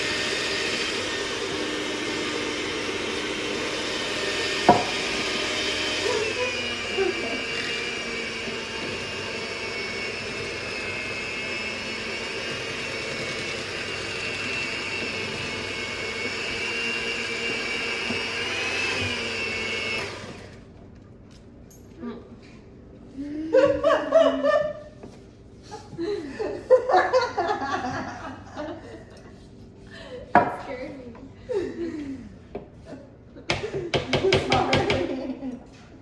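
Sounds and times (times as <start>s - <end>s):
stand mixer motor whining: 0.0s - 20.8s.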